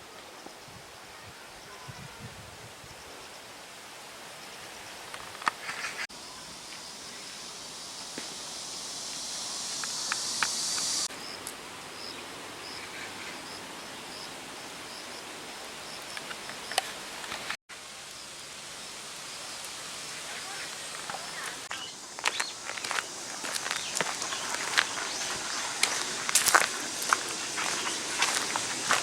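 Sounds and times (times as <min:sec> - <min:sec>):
high insect buzz: 0:05.7 - 0:13.4, 0:18.1 - 0:29.0.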